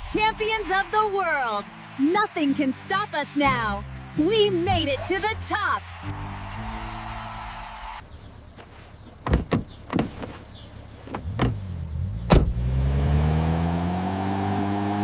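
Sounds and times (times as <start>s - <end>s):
sharp thumps: 9.2s - 10.3s, 11.0s - 12.6s
car engine revving: 11.0s - 15.0s.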